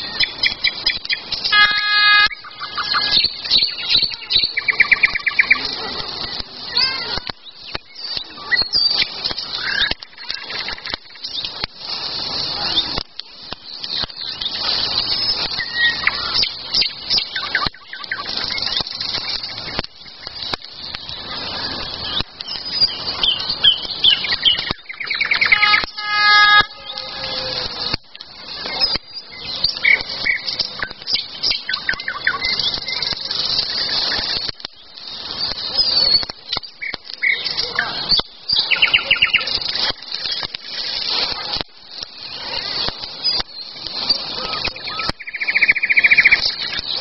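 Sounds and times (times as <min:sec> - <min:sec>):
songbirds chirping and singing: 0:00.0 - 0:01.6, 0:02.2 - 0:47.0.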